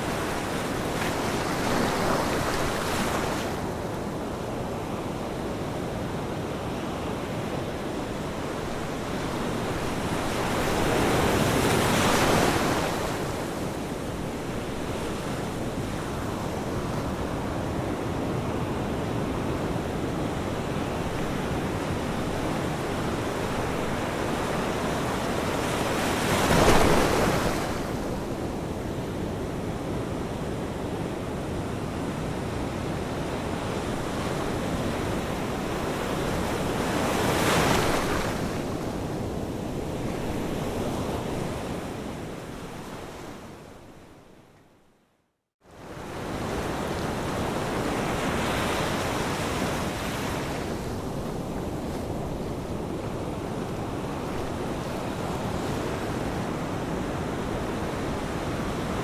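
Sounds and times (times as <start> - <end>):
ocean waves washing onto shore: 0.0 - 43.1.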